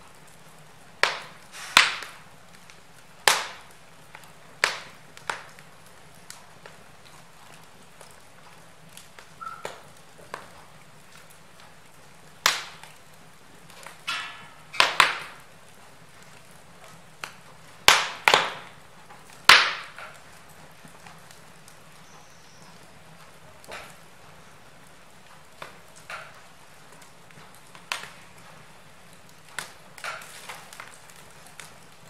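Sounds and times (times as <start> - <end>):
logs crackling in fireplace: 0.0 - 32.0
loud sharp pops: 1.0 - 2.3, 3.2 - 5.6, 12.4 - 13.0, 13.8 - 15.5, 17.2 - 18.8, 19.4 - 20.2.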